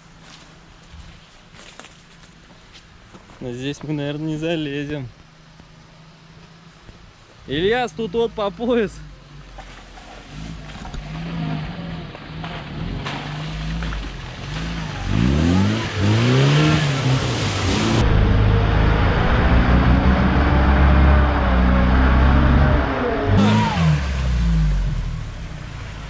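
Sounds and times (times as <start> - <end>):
vehicle engine revving: 8.6 - 26.0.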